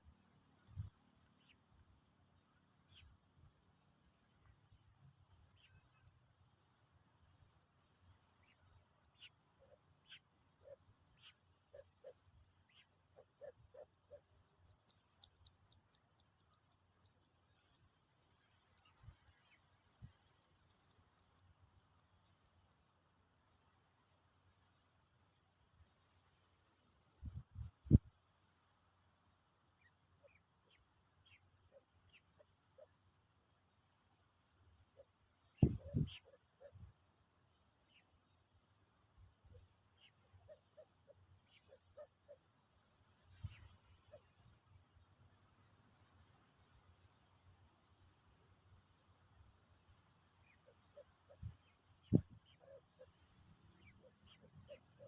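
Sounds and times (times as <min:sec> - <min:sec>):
rapid high-pitched ticking: 0:00.0 - 0:28.2.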